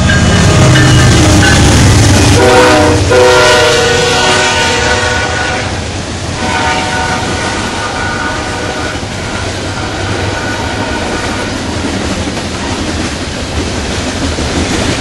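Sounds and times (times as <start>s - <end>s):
locomotive horn chord: 0.0s - 11.6s
train rumble and wheel noise: 0.0s - 15.0s.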